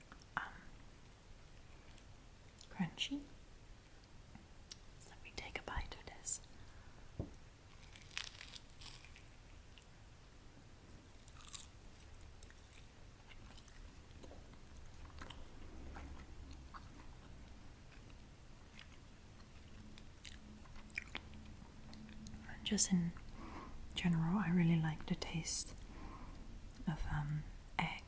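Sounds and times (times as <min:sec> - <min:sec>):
chewing with crunches: 0:07.7 - 0:09.9, 0:11.1 - 0:22.4.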